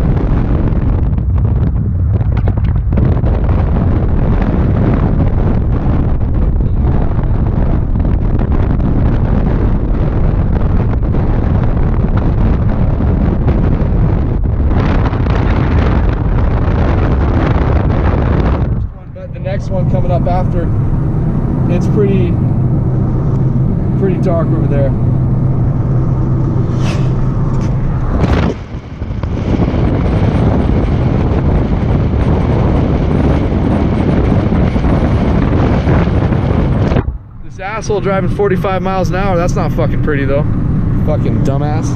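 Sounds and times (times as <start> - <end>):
car road noise: 0.0 - 41.9
wind buffeting microphone: 0.0 - 41.9.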